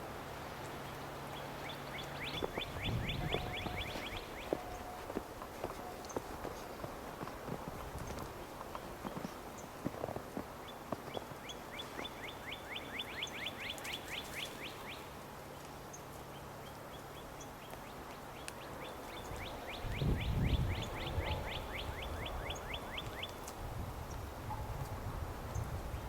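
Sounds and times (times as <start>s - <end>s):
songbird singing falling notes: 1.4s - 6.6s.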